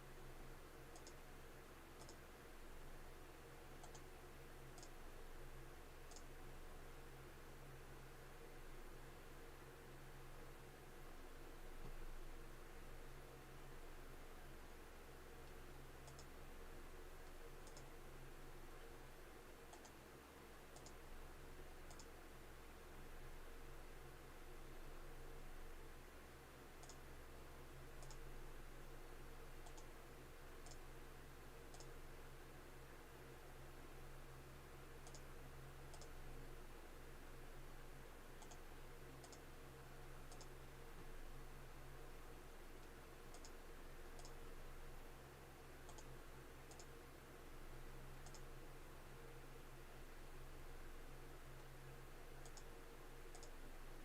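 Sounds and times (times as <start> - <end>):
low room hum: 0.0 - 54.0
faint sharp clicks: 0.9 - 1.2, 2.0 - 2.2, 3.8 - 4.1, 4.7 - 5.0, 6.1 - 6.3, 15.4 - 16.4, 17.2 - 17.9, 19.7 - 20.0, 20.7 - 21.0, 21.9 - 22.1, 26.8 - 27.0, 28.0 - 28.2, 29.6 - 29.9, 30.6 - 30.8, 31.7 - 31.9, 35.0 - 35.3, 35.9 - 36.2, 38.4 - 38.6, 39.2 - 39.5, 40.3 - 41.1, 42.8 - 43.6, 44.2 - 44.4, 45.9 - 46.9, 48.2 - 48.5, 52.4 - 52.7, 53.3 - 53.6.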